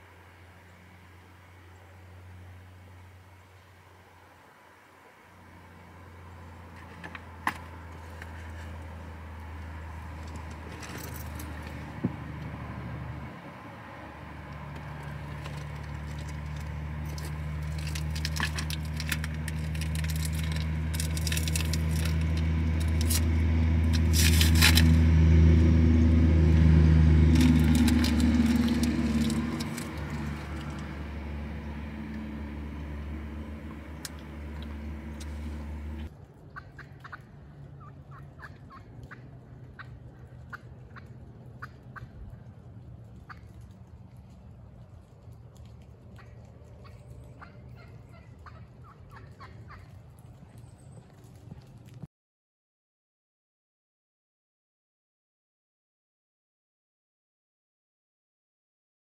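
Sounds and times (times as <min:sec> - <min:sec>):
low engine drone: 0:00.0 - 0:36.5
crackling clicks: 0:14.5 - 0:25.0, 0:27.3 - 0:31.1, 0:32.9 - 0:37.2, 0:38.1 - 0:47.8.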